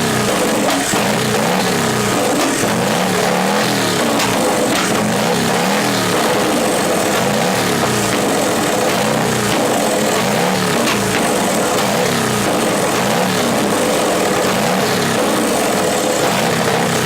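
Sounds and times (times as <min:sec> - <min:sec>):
engine revving: 0:00.0 - 0:17.0.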